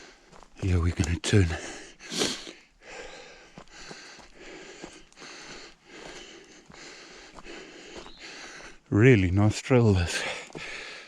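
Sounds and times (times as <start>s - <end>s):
footsteps on forest path: 0.0s - 11.0s
person breathing heavily: 1.5s - 8.9s, 10.0s - 11.0s.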